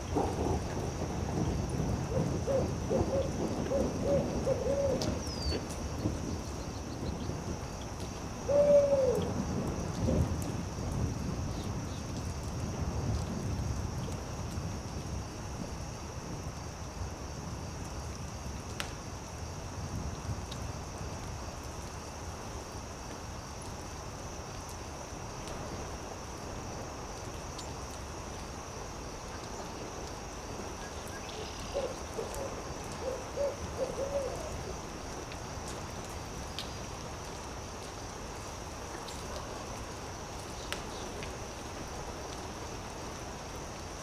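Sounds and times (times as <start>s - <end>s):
campfire crackling: 0.0s - 8.5s, 9.2s - 44.0s
insects chirring: 0.0s - 44.0s
owl hooting: 2.1s - 5.6s, 8.5s - 9.3s, 31.7s - 34.6s.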